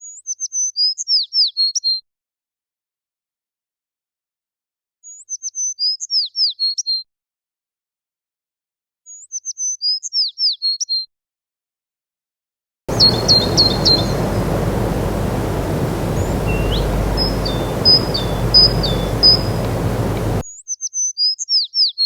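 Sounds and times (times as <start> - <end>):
outdoor hiss: 12.9 - 20.4
songbird chirping: 12.9 - 20.4.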